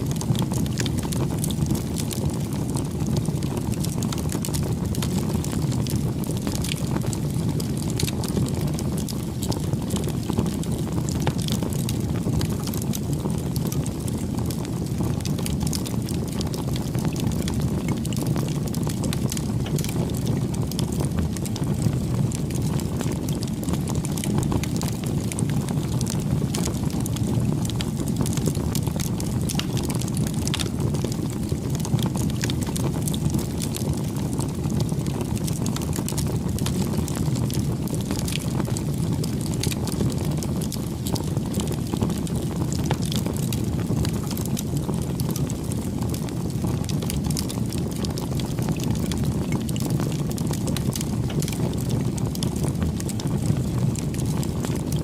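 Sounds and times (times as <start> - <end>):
bonfire flame rushing: 0.0 - 55.0
burning wood crackling: 0.0 - 55.0.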